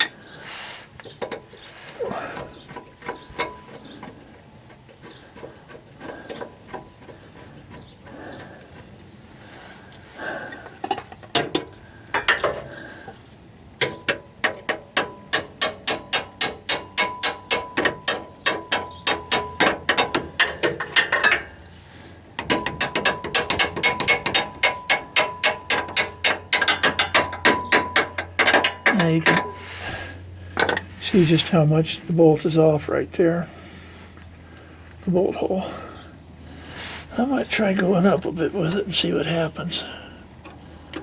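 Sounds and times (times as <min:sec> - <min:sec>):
scattered knocks: 0:22.4 - 0:29.6.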